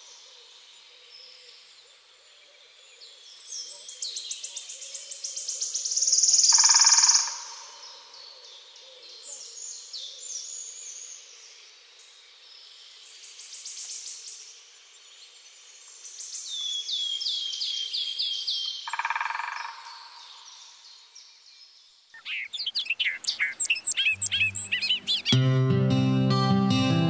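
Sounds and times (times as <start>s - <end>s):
loud busy bird calls: 15.2s - 25.4s
bird repeated down-slurred notes: 22.2s - 27.0s
bird fast high trill: 22.3s - 25.4s.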